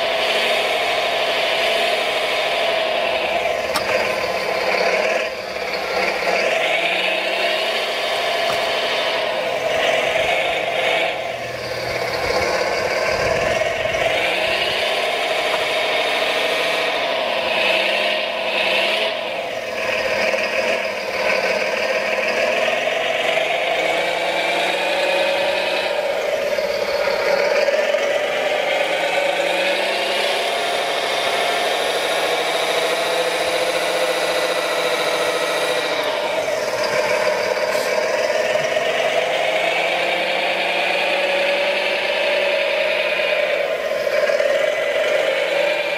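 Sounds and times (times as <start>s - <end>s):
electric motors whining: 0.0s - 45.9s
rattle: 3.0s - 17.8s, 30.9s - 39.6s.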